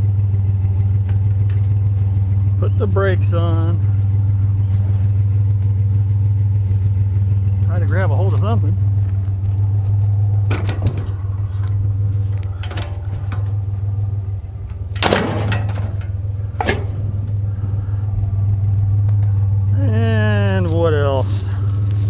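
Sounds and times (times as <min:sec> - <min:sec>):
truck engine idling: 0:00.0 - 0:22.0
scrap clattering: 0:08.3 - 0:17.4.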